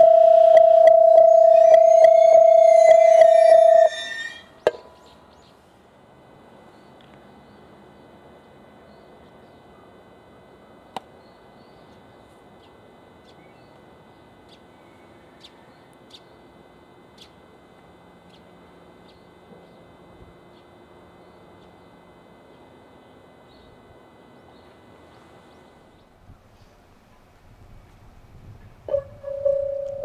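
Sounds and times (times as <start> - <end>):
faint high whine: 0.0 - 30.0
small birds chirping: 11.1 - 17.5, 18.2 - 22.8, 23.4 - 26.1.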